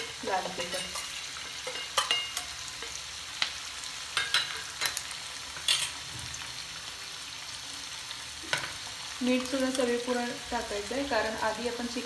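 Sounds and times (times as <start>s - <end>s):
steel spoon tapping pan: 0.0s - 3.1s, 4.2s - 5.0s
food sizzling in a pan: 0.0s - 12.0s.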